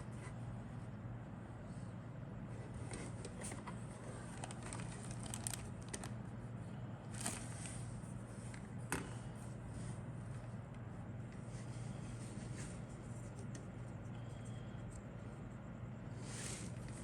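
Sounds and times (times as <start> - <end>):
steady low hum: 0.0 - 17.0
plastic packaging clicks and crinkles: 4.2 - 6.2.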